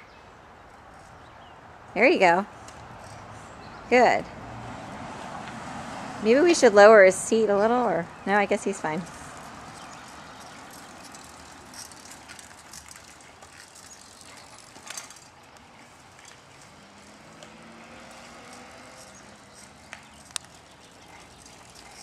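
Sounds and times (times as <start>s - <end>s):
bicycle clatter: 9.0s - 22.0s
bicycle clicks and rattles: 9.0s - 22.0s.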